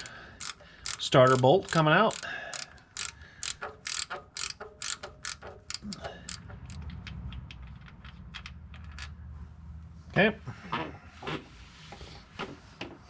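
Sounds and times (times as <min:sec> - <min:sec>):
socket ratchet clicking: 0:00.0 - 0:06.9.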